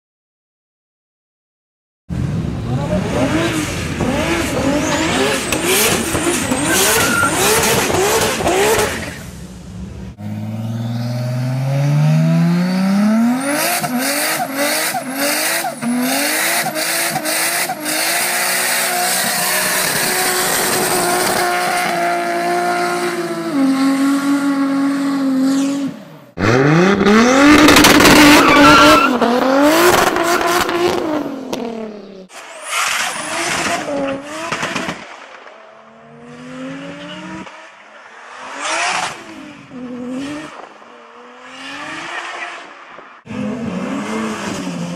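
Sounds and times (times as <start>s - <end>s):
car engine revving with crackles: 2.3s - 44.9s
tyre squeal: 6.4s - 7.8s, 28.2s - 29.2s.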